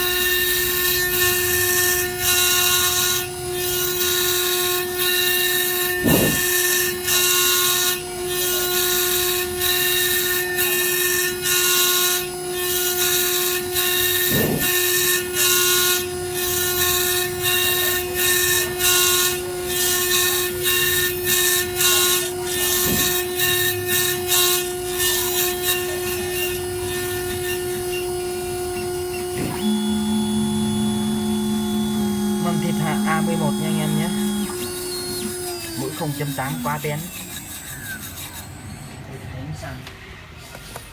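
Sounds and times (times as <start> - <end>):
bit grinding chip: 0.0 - 39.1
engraving spindle whine: 0.0 - 40.9
low steady tone: 29.6 - 35.0.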